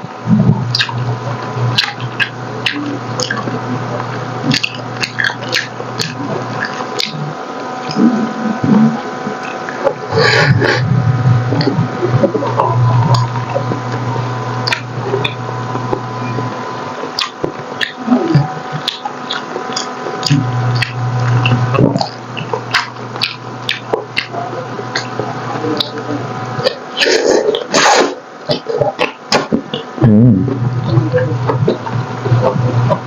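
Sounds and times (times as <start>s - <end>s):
person chewing food: 0.3s - 29.9s
mouth clicks: 0.3s - 33.0s.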